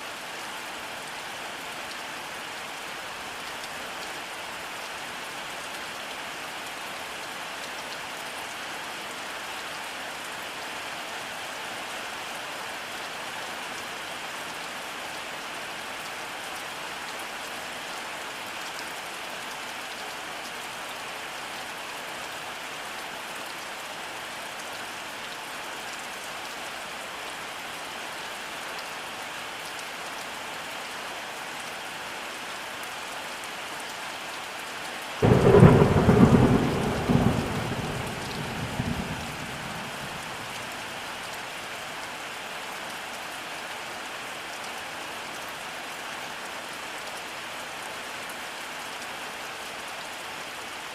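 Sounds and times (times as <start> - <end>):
steady rainfall: 0.0 - 50.9.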